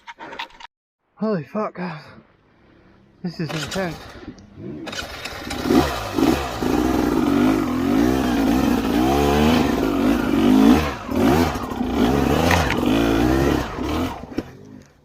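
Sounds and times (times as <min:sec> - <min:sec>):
dirt bike engine revving: 0:03.5 - 0:14.7.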